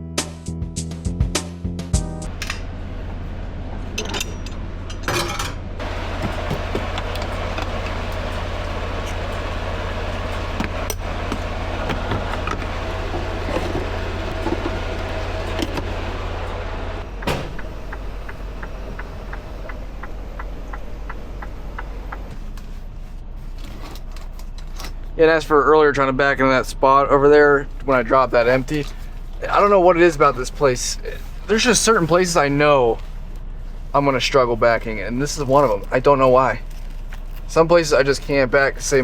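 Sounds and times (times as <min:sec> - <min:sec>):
truck engine rumble: 0:02.2 - 0:39.0
steady ticking: 0:16.5 - 0:22.3.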